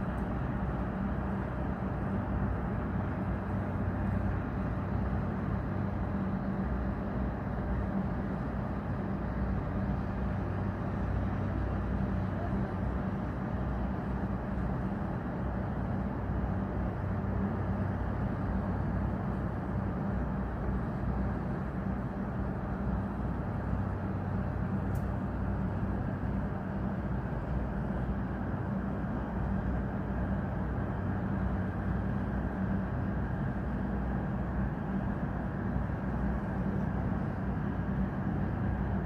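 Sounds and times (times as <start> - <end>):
faint click: 24.9 - 25.2.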